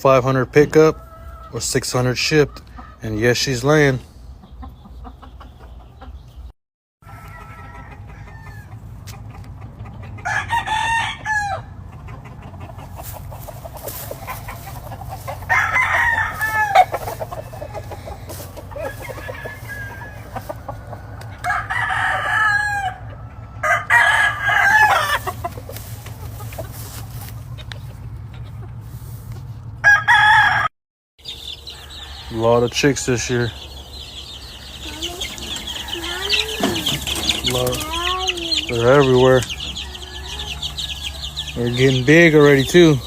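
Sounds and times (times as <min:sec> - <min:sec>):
chickens clucking: 0:00.1 - 0:29.8, 0:31.2 - 0:43.0
roosters crowing: 0:00.7 - 0:01.8, 0:07.0 - 0:09.1, 0:10.1 - 0:27.3, 0:29.8 - 0:43.0.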